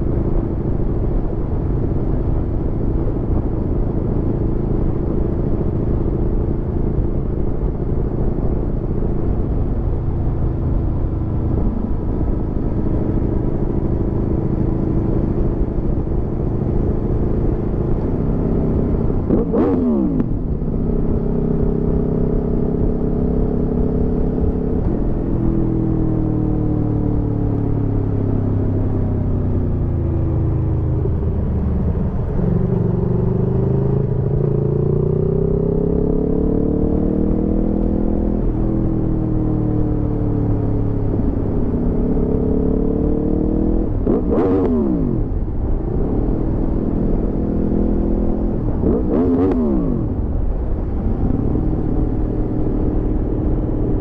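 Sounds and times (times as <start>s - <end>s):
motorcycle engine revving: 12.8s - 54.0s.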